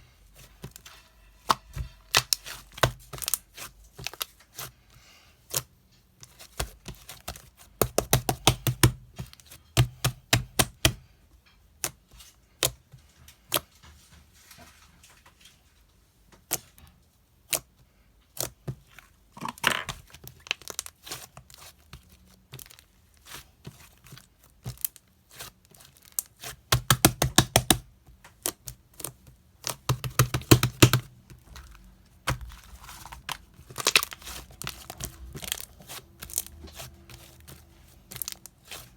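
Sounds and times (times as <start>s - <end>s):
clicks and taps of objects: 26.7s - 31.7s.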